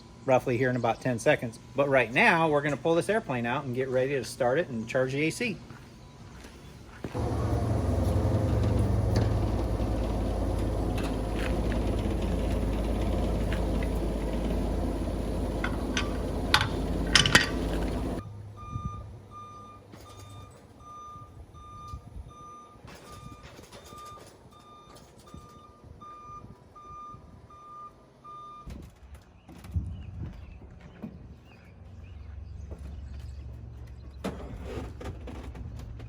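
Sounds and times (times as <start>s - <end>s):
vehicle engine running: 7.0s - 18.2s
reversing alarm beeping: 7.1s - 28.7s
sharp metal clanks: 15.6s - 18.2s.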